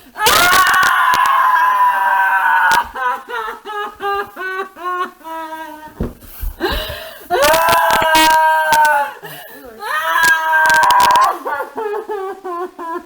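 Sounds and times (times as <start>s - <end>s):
woman screaming: 0.1s - 3.2s, 7.3s - 9.2s, 9.8s - 11.8s
woman wailing cries: 6.6s - 13.0s.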